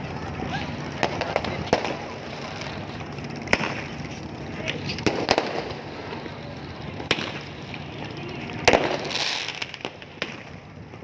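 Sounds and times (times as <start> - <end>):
firecrackers cracking: 0.3 - 11.0.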